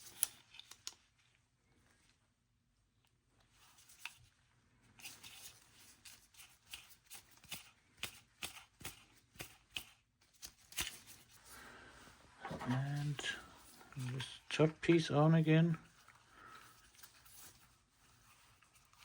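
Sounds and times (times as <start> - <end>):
plastic parts clicking and rustling: 0.0 - 1.2.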